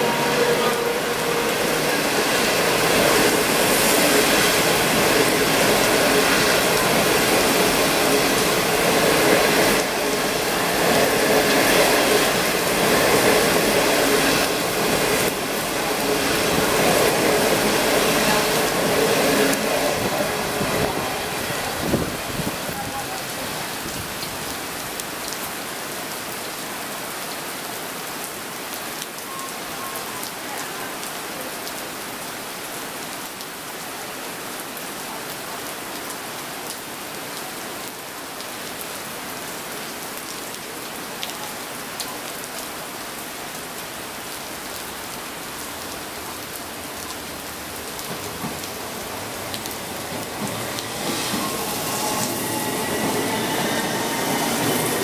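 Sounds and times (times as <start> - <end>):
faint train whine: 0.0 - 21.9, 48.2 - 55.0
electric train rumble: 0.0 - 22.3, 48.2 - 55.0
heavy rain hissing: 0.0 - 55.0.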